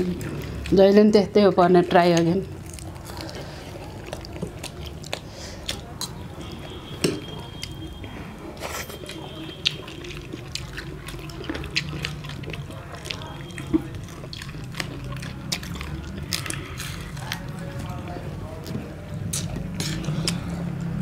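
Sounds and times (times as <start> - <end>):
people chewing food: 0.0 - 21.0
wet mouth smacking: 18.6 - 20.8.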